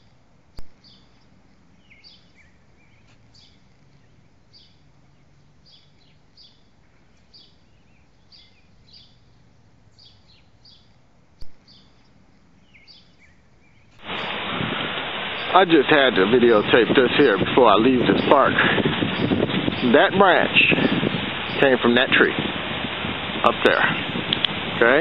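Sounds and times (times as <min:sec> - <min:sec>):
faint low hum: 0:00.0 - 0:14.3
small birds chirping: 0:00.0 - 0:25.0
sharp clicks: 0:24.3 - 0:24.6.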